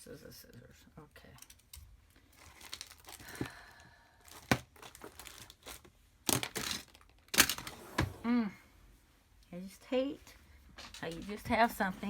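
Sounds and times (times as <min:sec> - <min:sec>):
paper crinkling and rustling: 0:02.3 - 0:03.6, 0:04.3 - 0:08.1.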